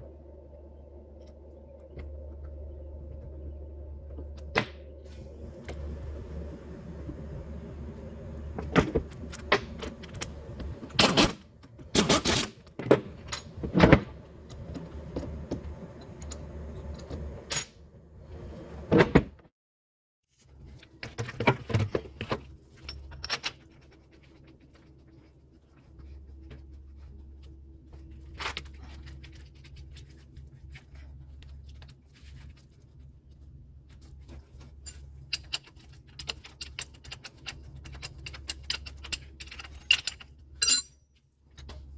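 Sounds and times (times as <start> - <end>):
metal tools clinking: 36.2 - 41.0.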